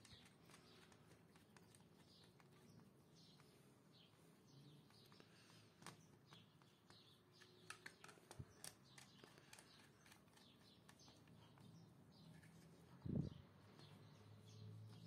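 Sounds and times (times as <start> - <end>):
small clicks: 5.1 - 11.5.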